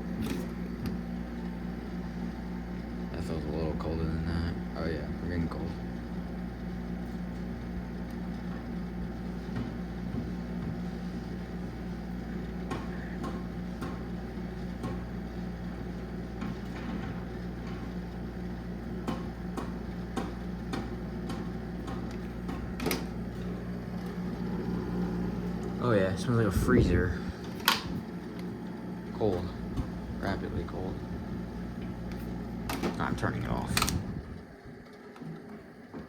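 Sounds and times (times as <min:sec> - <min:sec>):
fan rushing air: 0:00.0 - 0:34.8
air conditioner humming: 0:00.0 - 0:36.0.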